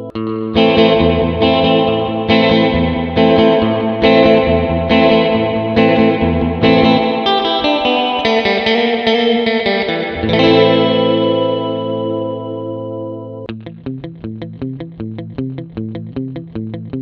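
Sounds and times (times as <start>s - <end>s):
surf electric guitar chords: 0.0s - 17.0s.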